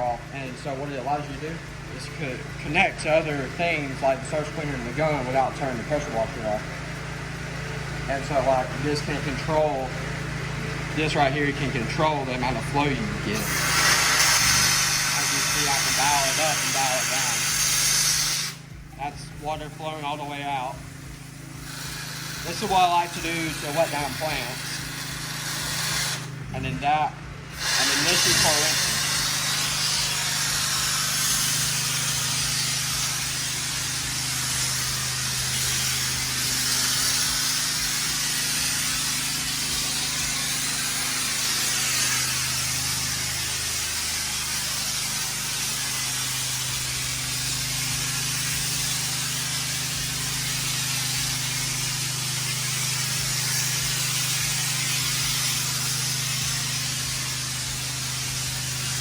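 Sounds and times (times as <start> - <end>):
high-pressure water spraying: 0.0 - 59.0
pressure washer hum: 0.0 - 59.0.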